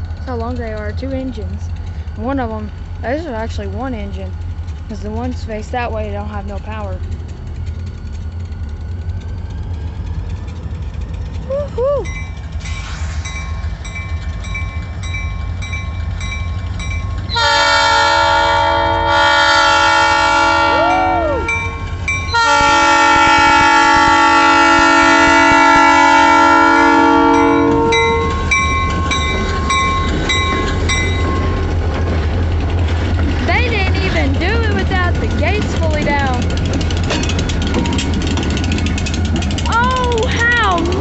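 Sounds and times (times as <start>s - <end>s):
diesel locomotives rumbling: 0.0s - 41.0s
multi-chime air horn blasts: 17.3s - 28.4s.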